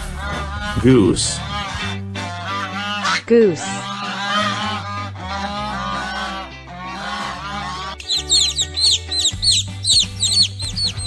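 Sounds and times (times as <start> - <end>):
background music: 0.0 - 11.0
goose honking: 0.0 - 11.0
short high chirps: 8.0 - 11.0.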